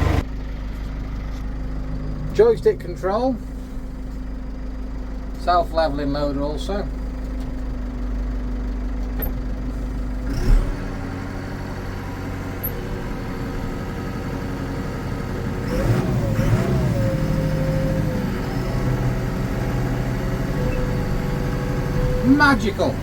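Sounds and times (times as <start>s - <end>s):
hydraulic whine: 0.0s - 0.2s, 9.1s - 23.0s
tractor engine running: 0.0s - 23.0s
sharp clunk: 9.1s - 9.4s.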